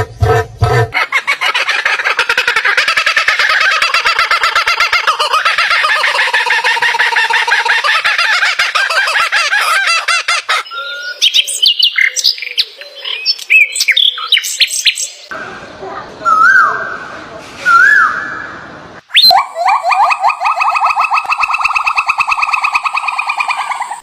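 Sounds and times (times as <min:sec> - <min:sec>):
birds calling: 0:00.0 - 0:15.4, 0:19.0 - 0:24.0
chirps and whistles: 0:10.6 - 0:15.2, 0:19.1 - 0:24.0.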